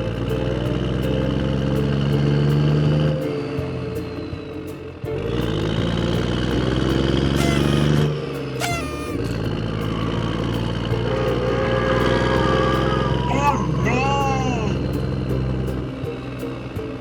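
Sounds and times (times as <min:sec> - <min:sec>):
falling squeaky glides: 0:07.4 - 0:09.5
small motor running: 0:08.6 - 0:09.4.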